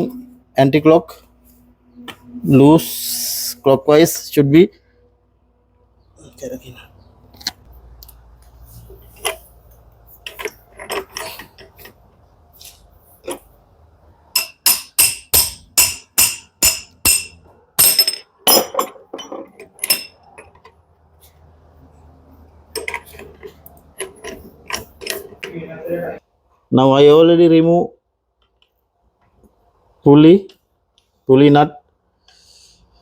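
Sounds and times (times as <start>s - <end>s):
metal tool knocking: 14.4s - 20.2s
ringing metallic taps: 14.4s - 20.3s.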